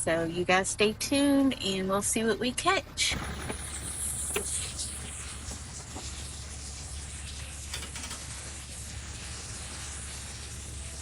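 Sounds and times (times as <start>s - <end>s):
steady hiss: 3.2s - 11.0s.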